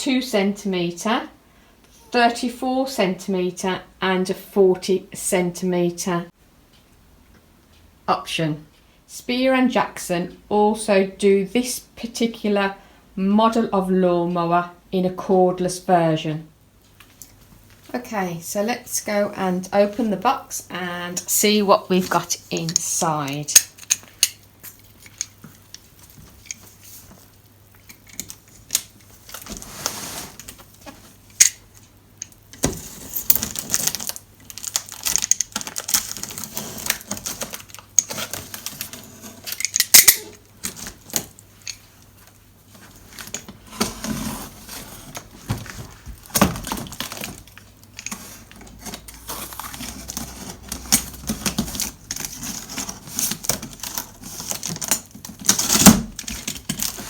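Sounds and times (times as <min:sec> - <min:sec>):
cardboard box being unpacked: 0:32.6 - 0:39.6, 0:42.8 - 0:57.0
packaging rustling: 0:32.6 - 0:57.0.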